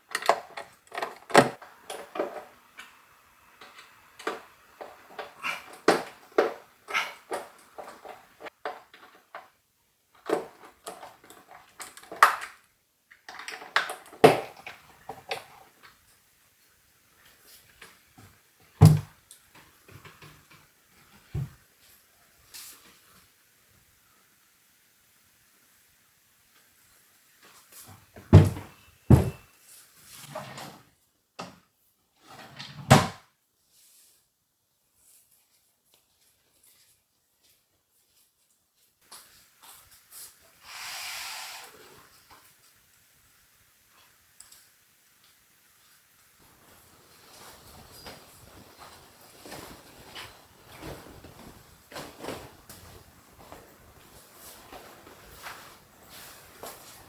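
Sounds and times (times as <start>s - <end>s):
knocks and thuds of handling: 18.8s - 19.1s, 28.2s - 29.4s
soft rustling: 45.7s - 57.0s.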